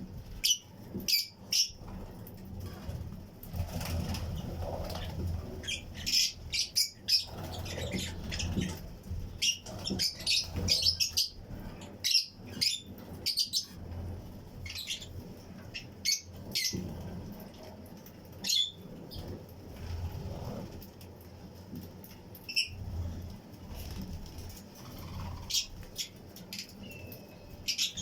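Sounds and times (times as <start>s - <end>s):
steady low hum: 0.0s - 28.0s
lovebirds chirping: 0.4s - 1.9s, 4.0s - 13.8s, 14.6s - 17.0s, 23.8s - 28.0s.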